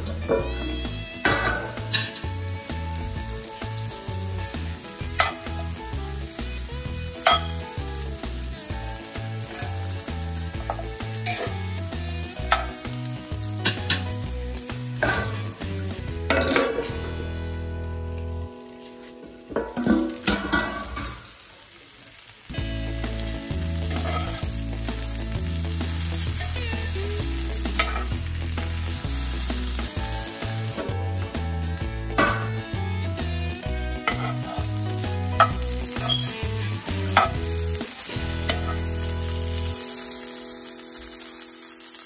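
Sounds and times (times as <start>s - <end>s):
squash sizzling in oil: 0.0s - 42.0s
metal lid clattering: 1.2s - 2.2s, 16.3s - 16.9s, 19.5s - 21.2s
metal spatula scraping pan: 16.3s - 17.0s, 23.9s - 24.4s, 34.0s - 34.7s.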